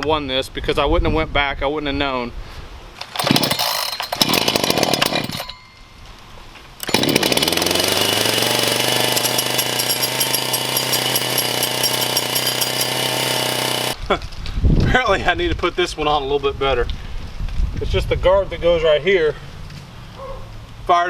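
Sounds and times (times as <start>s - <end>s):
chainsaw starting and running: 3.0s - 5.7s, 6.8s - 14.0s.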